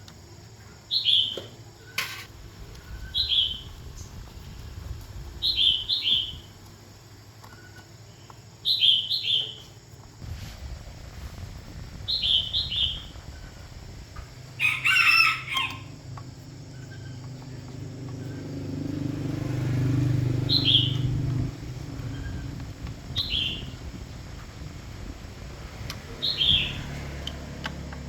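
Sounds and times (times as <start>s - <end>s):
birds chirping: 0.5s - 9.9s, 12.0s - 23.9s, 26.1s - 27.2s
loud bird call: 14.6s - 16.0s, 19.5s - 21.1s, 26.2s - 27.0s.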